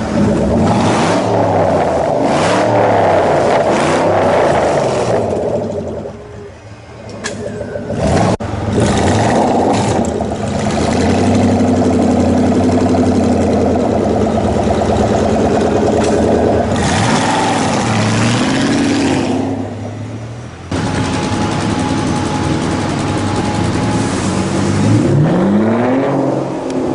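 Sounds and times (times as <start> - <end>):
car engine revving: 0.0 - 26.9.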